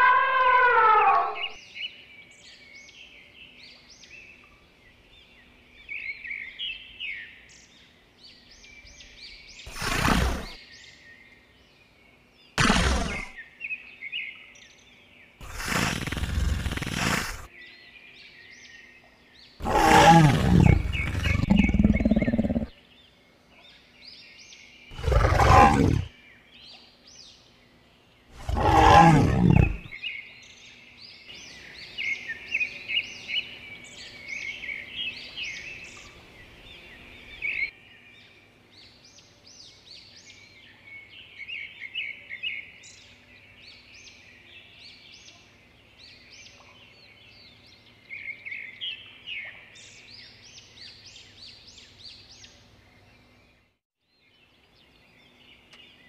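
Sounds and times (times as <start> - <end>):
birds chirping: 0.0 - 56.0
tiger roaring and growling: 9.7 - 10.6, 12.6 - 13.4, 15.4 - 17.5, 19.6 - 22.7, 24.9 - 26.1, 28.4 - 30.0.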